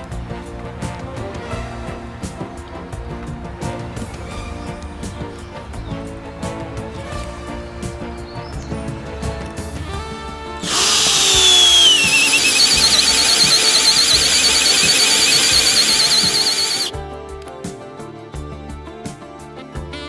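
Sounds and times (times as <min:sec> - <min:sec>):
background music: 0:00.0 - 0:20.0
cordless drill motor whining: 0:10.6 - 0:16.9.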